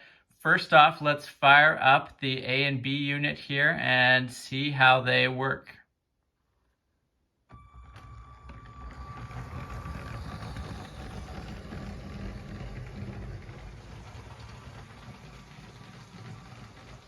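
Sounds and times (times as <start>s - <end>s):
faint steady whine: 7.5s - 17.0s
toy train motor whirring: 7.5s - 17.0s
wheels clattering on plastic rails: 7.6s - 17.0s.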